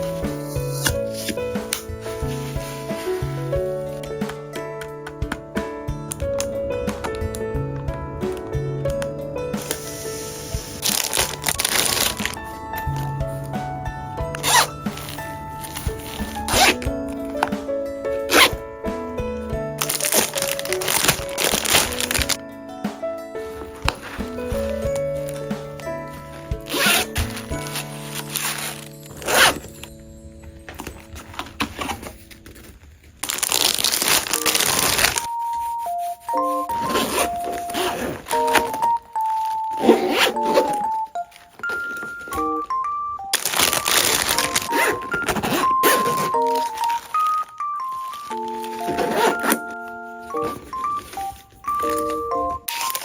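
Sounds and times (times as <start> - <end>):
background music: 0.0 - 53.0
packaging crinkling: 9.6 - 13.6, 19.8 - 22.4, 23.5 - 53.0
sharp crinkles or tears: 19.8 - 22.4, 30.8 - 42.8, 43.4 - 53.0.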